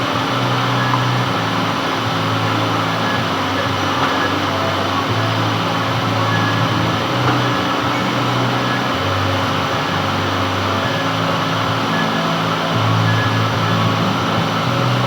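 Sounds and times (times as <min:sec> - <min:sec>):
metal lathe motor hum: 0:00.0 - 0:15.0.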